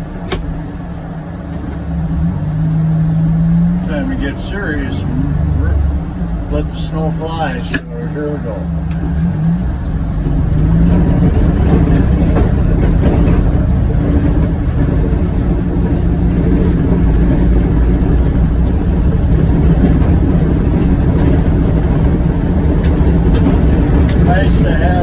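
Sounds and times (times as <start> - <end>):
utility vehicle engine under load: 0.0 - 25.0.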